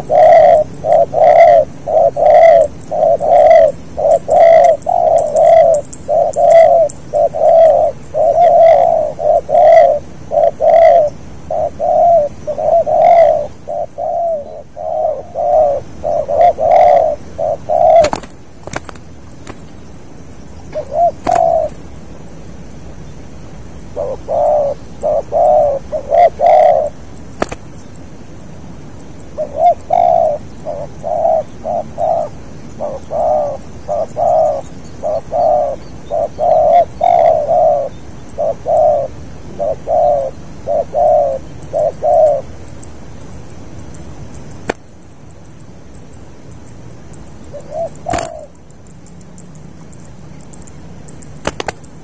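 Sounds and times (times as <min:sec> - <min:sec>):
dove cooing: 0:00.0 - 0:19.7, 0:20.7 - 0:22.0, 0:23.9 - 0:27.6, 0:29.2 - 0:42.7, 0:47.4 - 0:48.7.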